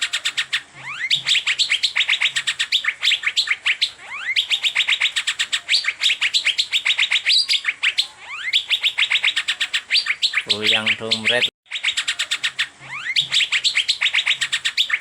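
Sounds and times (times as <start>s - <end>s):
bird rising whistle: 0.0s - 11.5s, 12.1s - 15.0s
bird chattering high chirps: 0.0s - 15.0s.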